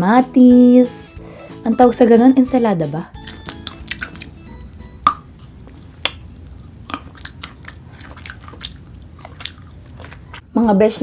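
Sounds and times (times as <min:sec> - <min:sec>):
crunchy chewing: 0:03.2 - 0:10.5.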